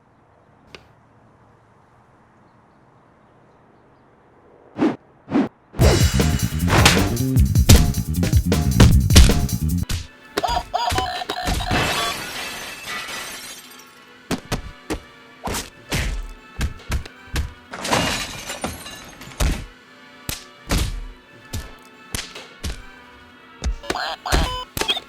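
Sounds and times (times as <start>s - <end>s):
music: 5.8s - 10.9s, 12.4s - 25.0s
crash with glass shattering: 11.7s - 14.0s, 17.8s - 19.4s.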